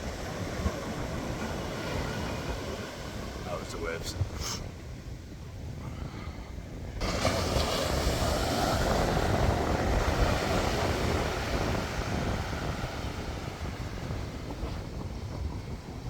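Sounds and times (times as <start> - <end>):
wave breaking on beach: 7.0 - 15.9.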